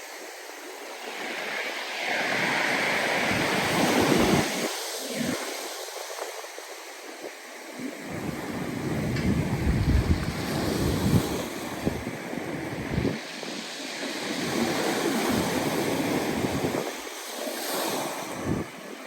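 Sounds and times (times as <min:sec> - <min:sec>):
surf breaking and washing ashore: 0:00.0 - 0:19.0
wind buffeting microphone: 0:08.0 - 0:13.5.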